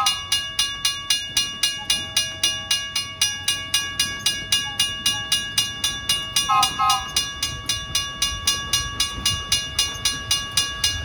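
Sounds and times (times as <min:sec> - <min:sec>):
railroad crossing bell ringing: 0:00.0 - 0:11.0
train low rumble: 0:00.0 - 0:11.0.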